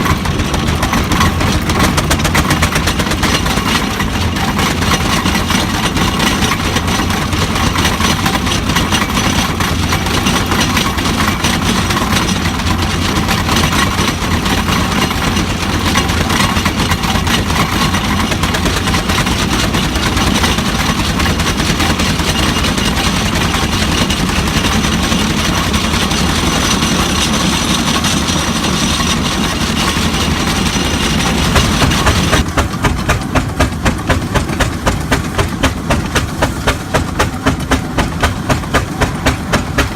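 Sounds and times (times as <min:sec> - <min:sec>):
steam engine exhaust chuffing: 0:00.0 - 0:39.9.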